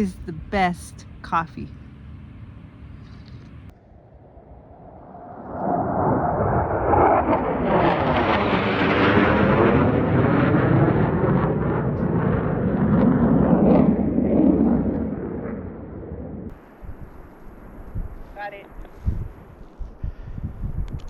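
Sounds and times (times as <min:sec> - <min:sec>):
jet flying past: 0:03.9 - 0:19.5.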